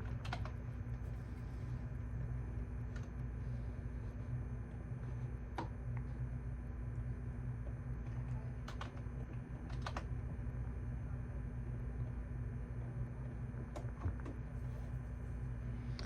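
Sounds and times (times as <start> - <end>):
computer keyboard clicks: 0.0 - 0.6, 8.6 - 9.0, 9.6 - 10.1
steady low hum: 0.0 - 16.0.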